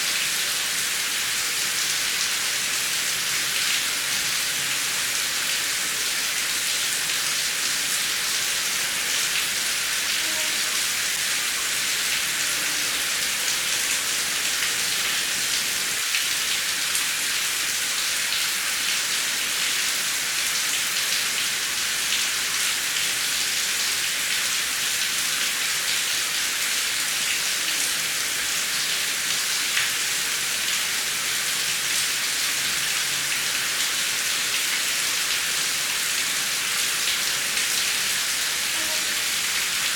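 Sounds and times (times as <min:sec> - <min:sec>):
heavy rain hissing: 0:02.6 - 0:16.1, 0:25.7 - 0:39.9.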